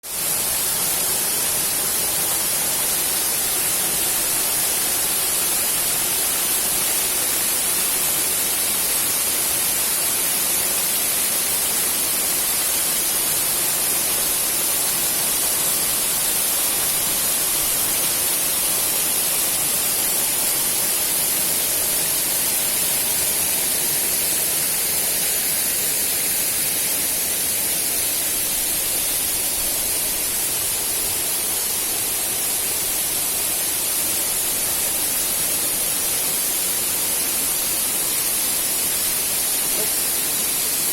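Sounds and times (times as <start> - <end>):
waterfall rushing: 10.8 - 40.9.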